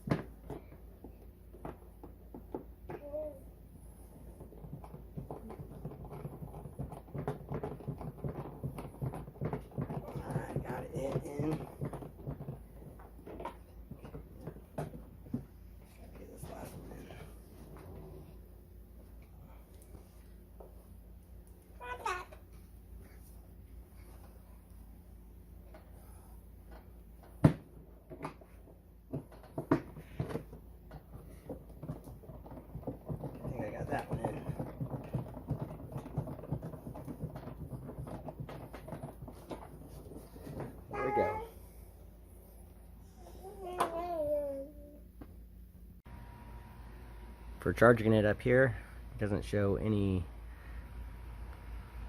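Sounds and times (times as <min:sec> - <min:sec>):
plastic toy parts knocking: 0:04.5 - 0:15.4, 0:29.1 - 0:41.2.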